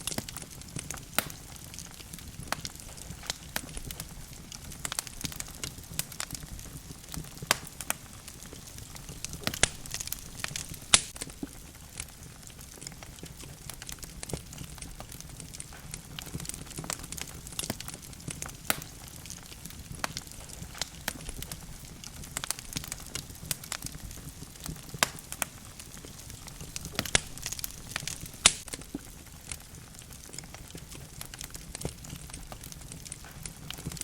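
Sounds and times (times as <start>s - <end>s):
low rumble of flame: 0.0s - 34.0s
wood fire crackling and popping: 0.0s - 34.0s.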